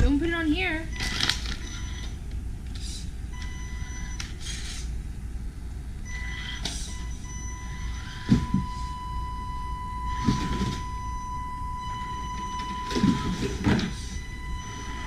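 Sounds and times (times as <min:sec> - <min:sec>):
electronic beeping: 0:06.1 - 0:15.0.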